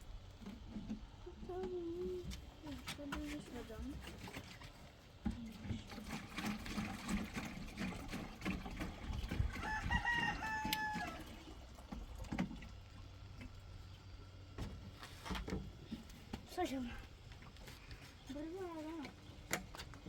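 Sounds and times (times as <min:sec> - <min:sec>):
rooster crowing: 0:09.5 - 0:11.4.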